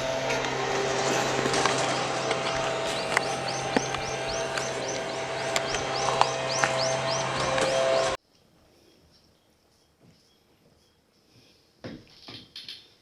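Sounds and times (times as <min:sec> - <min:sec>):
bird chirping: 0:00.0 - 0:08.2
low hum: 0:00.0 - 0:08.2.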